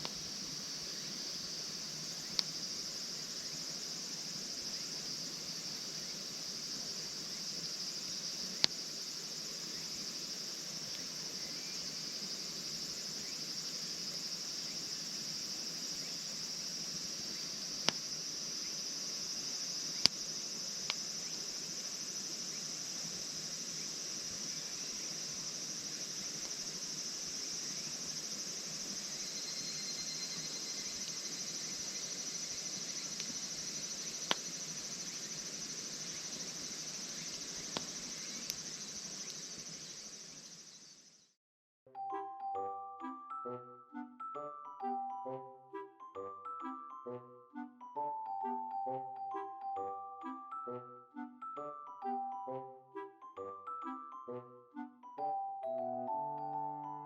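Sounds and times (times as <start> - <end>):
crickets chirring: 0.0 - 41.4
sharp pops: 34.2 - 34.5.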